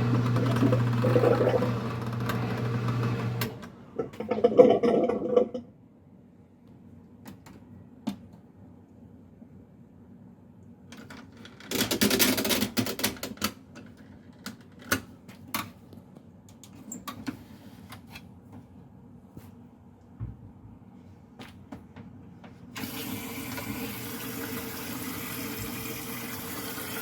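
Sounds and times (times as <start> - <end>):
washing machine low hum: 0.0 - 5.6, 16.8 - 27.0.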